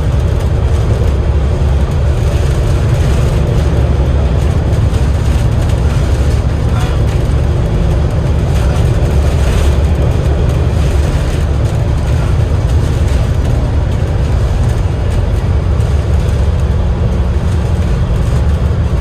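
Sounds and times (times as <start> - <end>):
bus diesel engine rumble: 0.0 - 19.0.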